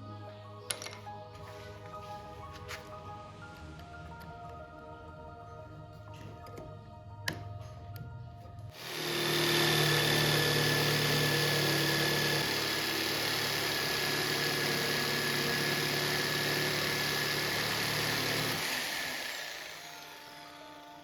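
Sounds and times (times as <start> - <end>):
electric power tool running: 8.8 - 21.0.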